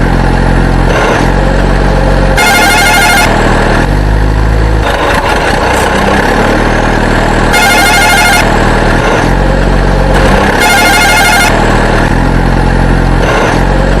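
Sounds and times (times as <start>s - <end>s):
high ringing horn-like tone: 2.4s - 3.4s, 7.5s - 8.5s, 10.5s - 11.6s
toy vehicle engine drone: 2.4s - 3.4s, 7.5s - 8.5s, 10.5s - 11.7s.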